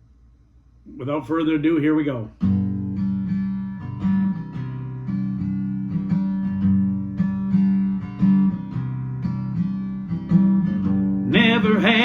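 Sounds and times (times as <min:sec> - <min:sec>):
acoustic guitar strumming: 0:02.4 - 0:12.0.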